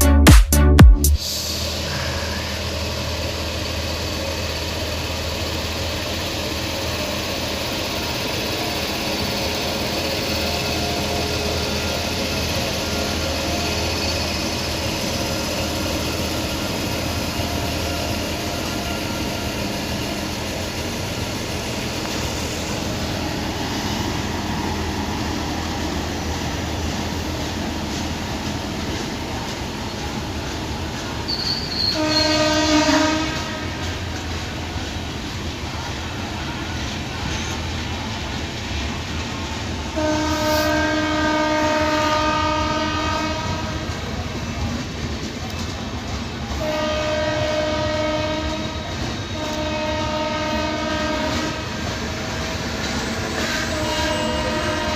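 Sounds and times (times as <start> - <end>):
passenger train running past: 0.0 - 54.9
train horn blast: 31.7 - 34.0, 40.0 - 43.9, 46.6 - 51.8, 53.6 - 54.9.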